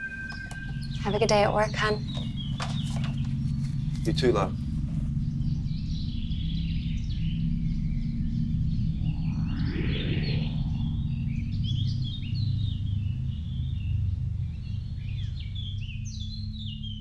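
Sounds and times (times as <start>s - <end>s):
small songbirds chirping: 0.0s - 4.7s
steady low hum: 0.0s - 9.3s.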